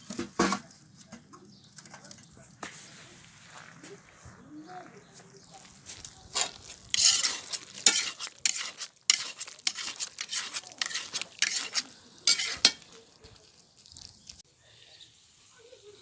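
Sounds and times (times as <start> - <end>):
spoon scraping pot: 5.6 - 14.4.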